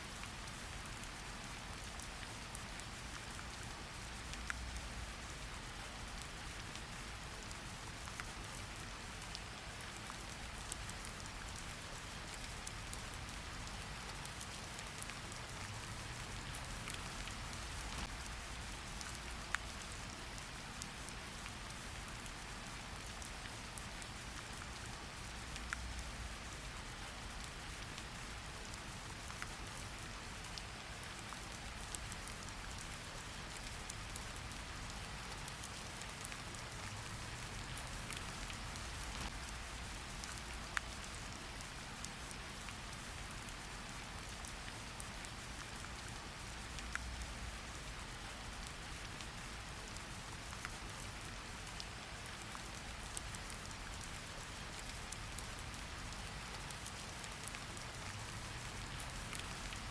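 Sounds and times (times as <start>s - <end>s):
steady rain hiss: 0.0s - 59.9s
raindrops ticking: 8.0s - 21.5s, 22.3s - 45.8s, 46.4s - 47.6s, 56.8s - 59.9s.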